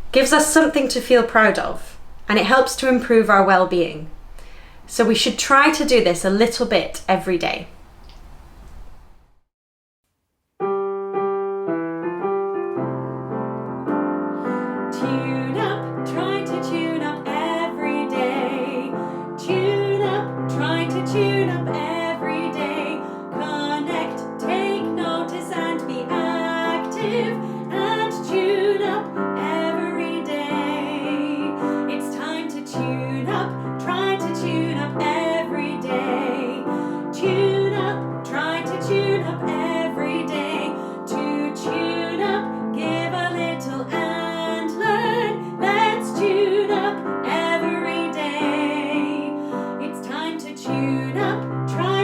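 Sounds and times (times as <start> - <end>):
piano accompaniment: 0.0 - 3.0, 10.6 - 52.0
woman singing: 14.9 - 52.0.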